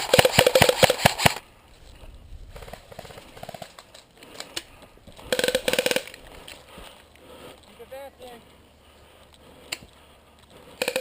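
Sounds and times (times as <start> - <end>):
airsoft rifle rapid firing: 0.0 - 1.4, 5.3 - 6.2, 10.8 - 11.0.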